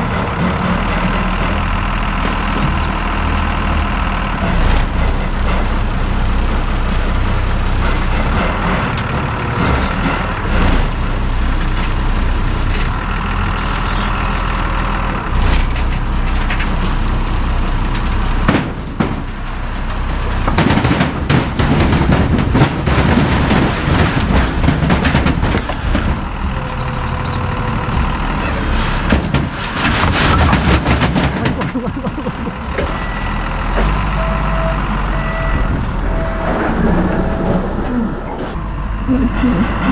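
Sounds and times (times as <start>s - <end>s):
knocks and clatter: 0.0s - 3.5s, 7.6s - 12.0s, 17.6s - 26.8s, 27.9s - 34.2s
forklift engine running: 0.0s - 39.9s.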